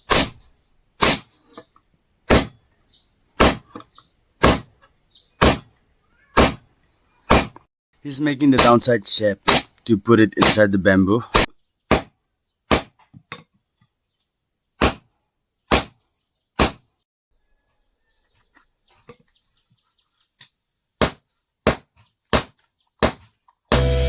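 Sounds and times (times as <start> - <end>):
faint bird chirps: 0.0 - 0.6, 1.3 - 1.8, 2.6 - 4.2, 4.8 - 7.3, 17.4 - 20.8
hammer striking blade on anvil: 0.1 - 0.4, 1.0 - 1.2, 8.6 - 8.8.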